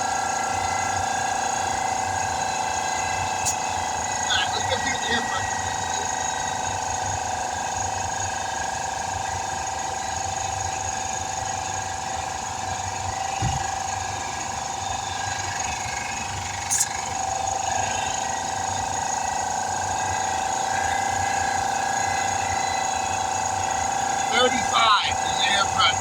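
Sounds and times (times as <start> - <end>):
air compressor whining: 0.0 - 26.0.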